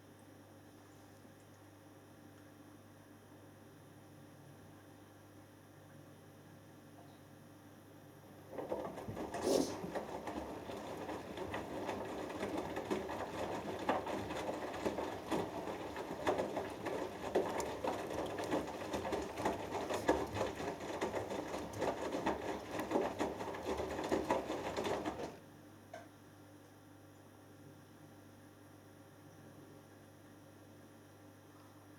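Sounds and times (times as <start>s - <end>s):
washing machine drum tumbling laundry: 8.3s - 25.4s.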